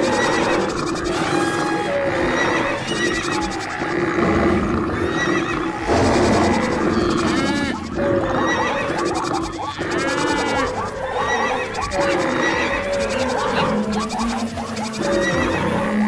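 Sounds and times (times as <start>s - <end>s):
herd of wild animals calling: 0.0s - 16.0s.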